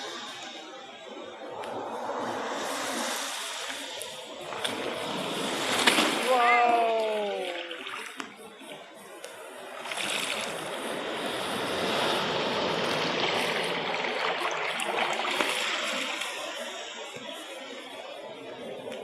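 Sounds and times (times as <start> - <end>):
wave breaking and washing in: 1.4 - 8.5, 9.5 - 17.1.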